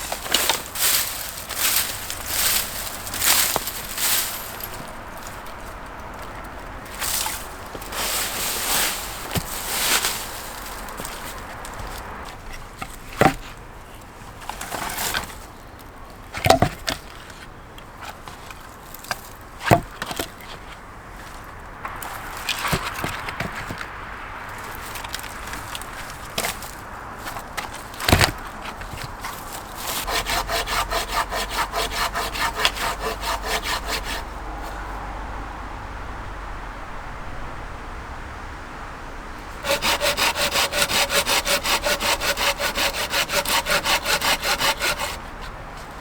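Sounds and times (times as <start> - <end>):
hand saw strokes: 0.0 - 13.6, 14.4 - 15.5, 24.6 - 34.8, 39.5 - 46.0.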